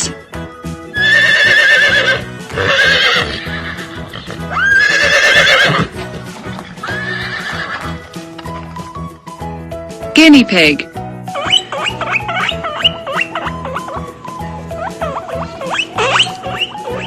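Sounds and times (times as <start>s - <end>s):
light children's music: 0.0s - 17.0s
horse whinnying: 1.0s - 6.0s, 6.7s - 8.0s.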